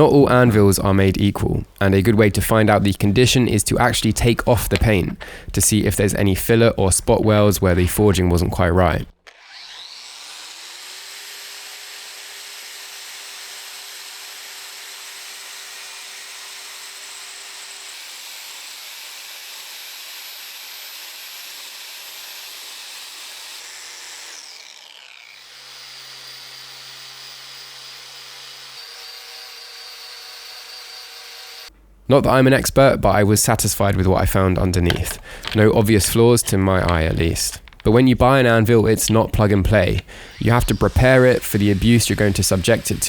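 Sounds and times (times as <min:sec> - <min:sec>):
rotary power tool stripping paint: 0:09.2 - 0:31.7, 0:38.9 - 0:43.0.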